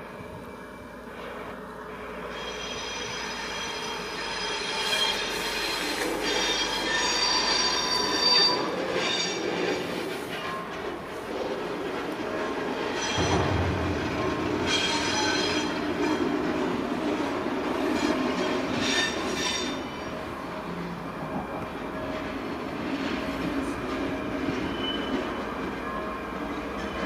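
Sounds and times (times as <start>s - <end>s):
train rumbling past: 0.0s - 27.0s
high-pitched metallic squealing: 2.2s - 10.1s, 12.8s - 16.6s, 18.0s - 20.1s.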